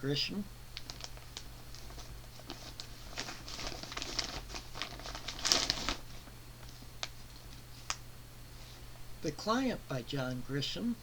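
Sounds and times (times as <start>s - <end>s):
shopping bag rustling: 0.9s - 6.3s.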